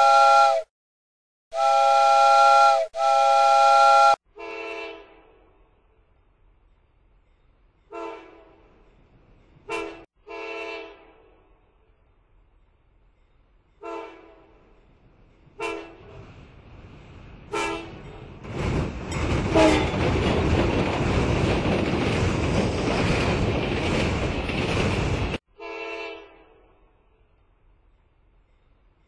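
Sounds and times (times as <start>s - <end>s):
train horn blasts: 0.0s - 0.7s, 1.5s - 5.7s, 7.9s - 8.6s, 9.7s - 11.6s, 13.8s - 14.6s, 15.6s - 16.2s, 17.5s - 18.0s, 19.5s - 19.9s, 25.5s - 27.0s
passing train rushing: 11.7s - 25.4s.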